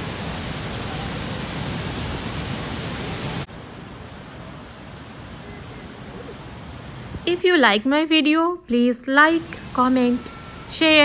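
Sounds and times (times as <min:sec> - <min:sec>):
waterfall rushing: 0:00.0 - 0:07.1, 0:09.3 - 0:11.0.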